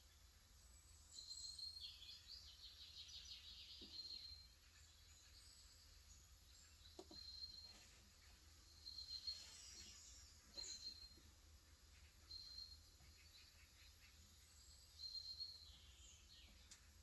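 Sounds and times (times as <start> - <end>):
birds chirping: 0.9 - 17.0.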